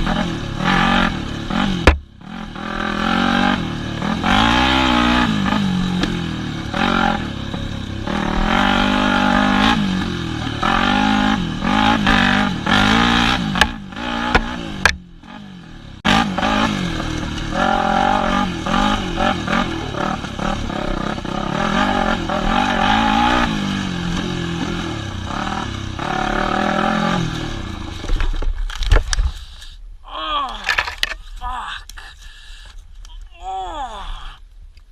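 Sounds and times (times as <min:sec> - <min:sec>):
dirt bike engine revving: 0:00.0 - 0:28.2
sharp knocks and clatters: 0:01.8 - 0:02.1.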